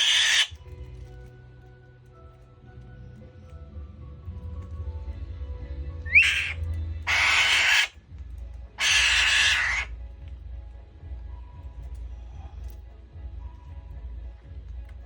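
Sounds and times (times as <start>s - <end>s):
falcon screeching: 0.0s - 0.6s, 6.1s - 8.0s, 8.8s - 9.9s
background music: 0.0s - 15.0s.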